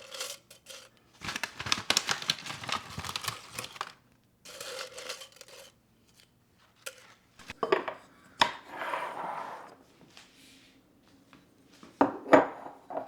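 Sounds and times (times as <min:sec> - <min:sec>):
kitchen items clicking and knocking: 0:00.0 - 0:05.7
rustling or scraping: 0:00.0 - 0:07.6.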